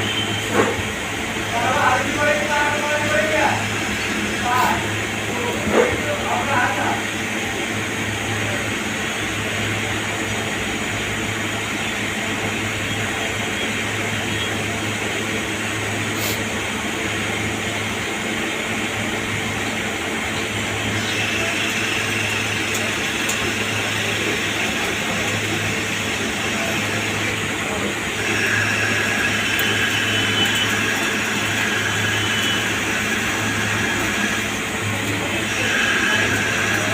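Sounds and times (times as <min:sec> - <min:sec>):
lathe humming and whirring: 0:00.0 - 0:36.9
faint high whine: 0:28.2 - 0:36.9.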